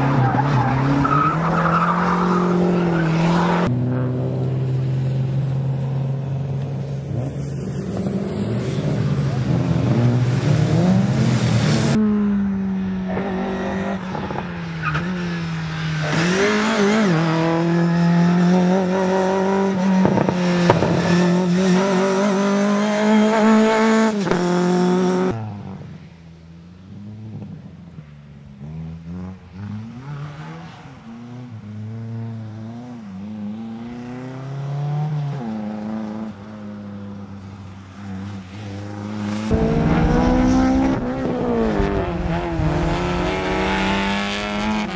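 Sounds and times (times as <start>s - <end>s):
car engine revving hard: 39.1s - 44.9s.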